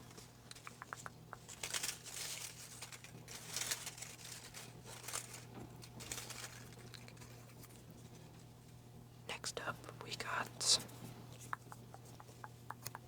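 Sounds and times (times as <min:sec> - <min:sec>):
paper slips rustling: 0:00.1 - 0:07.5.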